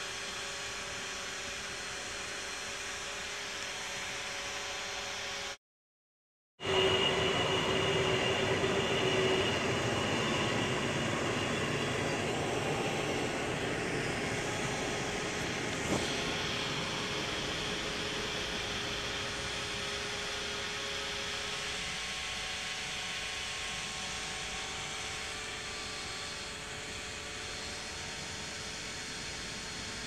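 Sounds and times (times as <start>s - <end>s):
electric train running: 6.6s - 30.0s.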